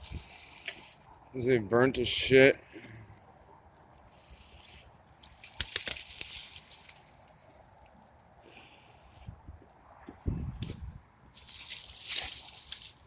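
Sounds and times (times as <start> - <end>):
twigs rustling and crackling: 2.5 - 8.4, 10.4 - 13.0
twigs snapping: 3.2 - 8.3, 10.5 - 13.0.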